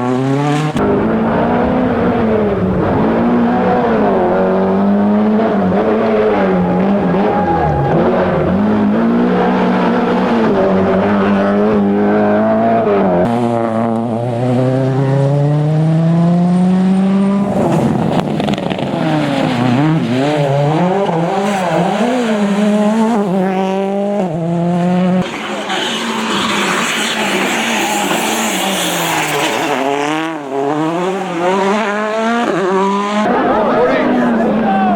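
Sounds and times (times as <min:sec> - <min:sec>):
rally car engines revving: 0:00.0 - 0:34.9.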